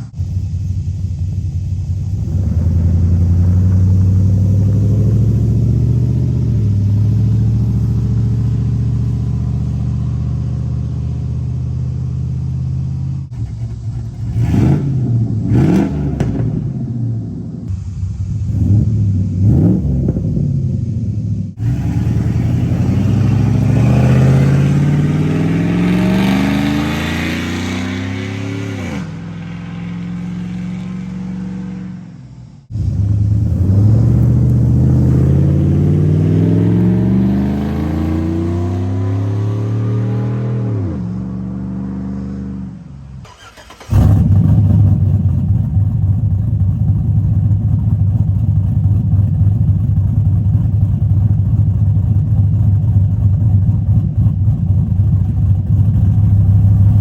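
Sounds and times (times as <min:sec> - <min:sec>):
pickup truck engine accelerating: 0:00.0 - 0:57.0.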